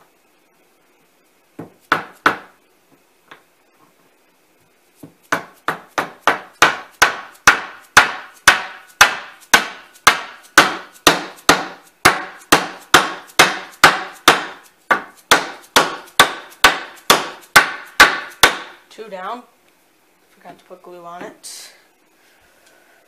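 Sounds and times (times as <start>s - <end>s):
hammer striking wood: 1.6s - 2.6s, 5.0s - 18.8s.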